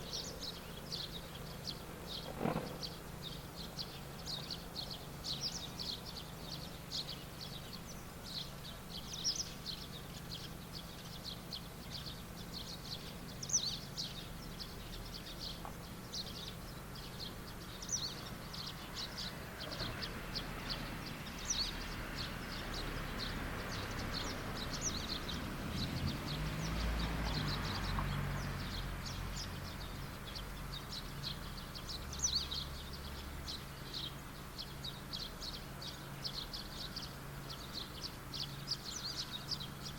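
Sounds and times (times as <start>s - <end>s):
small birds chirping: 0.0s - 39.9s
distant engine passing: 17.5s - 33.6s.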